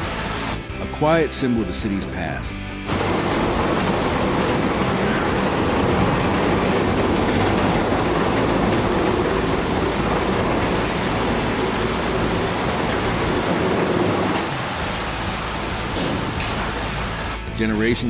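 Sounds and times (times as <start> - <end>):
demolition machinery rumbling: 2.8 - 18.0
clattering: 2.9 - 14.7.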